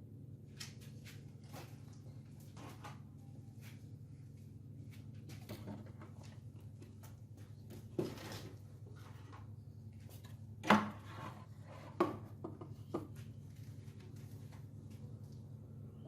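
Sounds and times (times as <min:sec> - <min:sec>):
steady low hum: 0:00.0 - 0:16.0
objects knocking on hard surface: 0:11.9 - 0:13.2.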